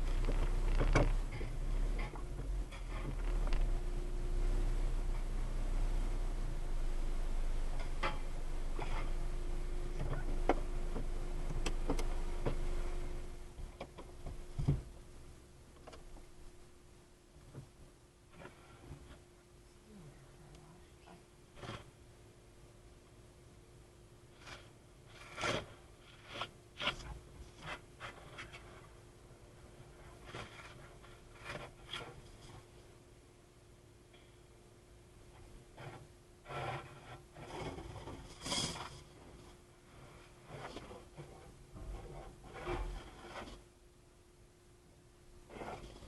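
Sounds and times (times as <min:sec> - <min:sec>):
faint rubbing and scraping: 0:00.0 - 0:13.6, 0:18.3 - 0:19.3, 0:20.0 - 0:22.0, 0:24.2 - 0:32.9, 0:35.3 - 0:43.8, 0:45.4 - 0:46.0
car wash low hum: 0:00.0 - 0:21.0
faint steady tone: 0:00.0 - 0:46.0
low steady hum: 0:00.0 - 0:46.0
heavy thump: 0:13.6 - 0:15.0.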